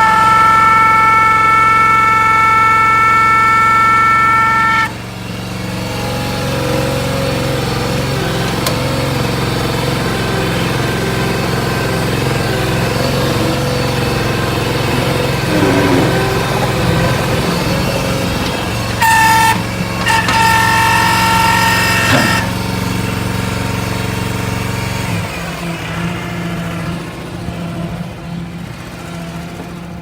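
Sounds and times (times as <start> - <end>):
loud high squeal: 0.0 - 7.2, 9.6 - 23.9
gas engine running: 0.0 - 30.0.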